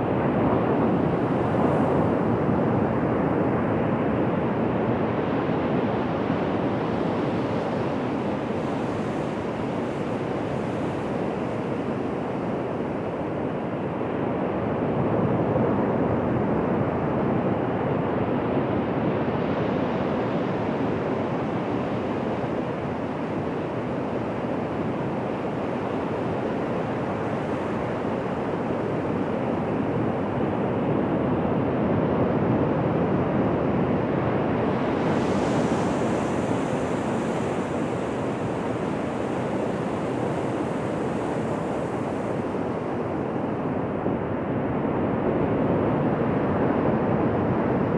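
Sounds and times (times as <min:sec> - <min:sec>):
waves breaking on beach: 0:34.7 - 0:43.2.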